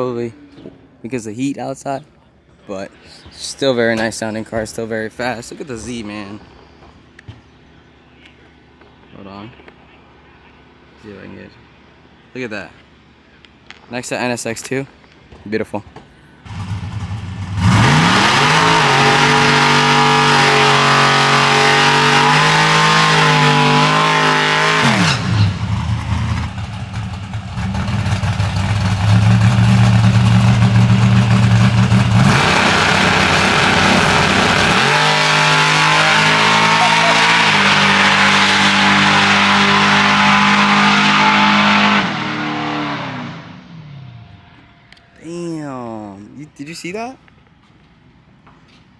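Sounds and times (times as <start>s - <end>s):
car engines revving hard: 16.4s - 44.2s.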